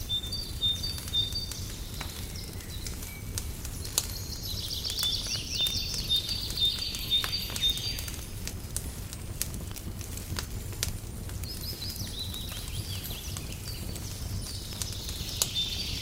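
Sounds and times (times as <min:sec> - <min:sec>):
bird singing rapid trill: 0:00.0 - 0:03.3, 0:04.2 - 0:08.2
small birds chirping: 0:00.0 - 0:08.5, 0:11.2 - 0:16.0
wood fire crackling and popping: 0:00.0 - 0:16.0.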